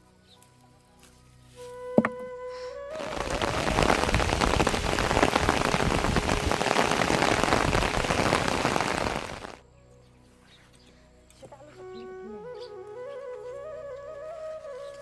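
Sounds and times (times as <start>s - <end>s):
heavy rain patter: 2.9s - 9.6s.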